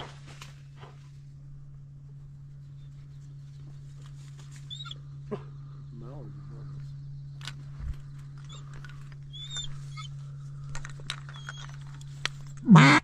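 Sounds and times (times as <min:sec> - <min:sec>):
low hum: 0:00.0 - 0:13.0
faint rustling and clicks: 0:06.7 - 0:12.7
duck quack: 0:12.6 - 0:13.0.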